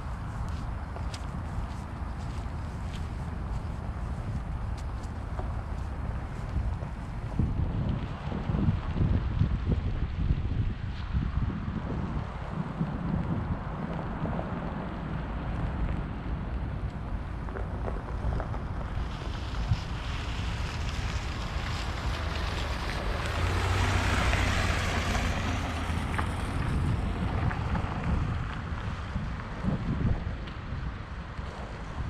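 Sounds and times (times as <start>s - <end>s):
wind buffeting microphone: 0.0s - 32.0s
tyres hissing on wet road: 16.9s - 29.3s.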